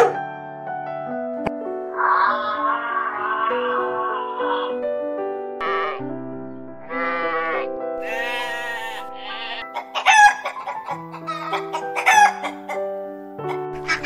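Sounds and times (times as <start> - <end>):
background music with held notes: 0.0 - 14.0
chickens calling: 1.9 - 4.8, 5.6 - 14.0
sheep bleating: 1.9 - 4.8, 5.6 - 6.0, 6.8 - 9.7.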